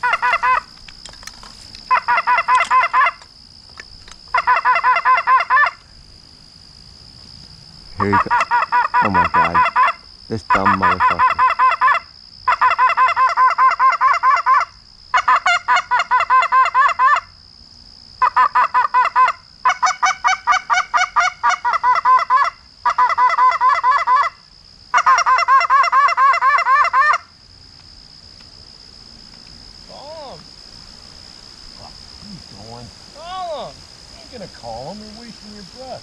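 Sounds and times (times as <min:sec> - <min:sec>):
goose call clucks and honks: 0:00.0 - 0:00.7, 0:01.9 - 0:03.2, 0:04.3 - 0:05.8, 0:08.0 - 0:17.3, 0:18.2 - 0:27.3.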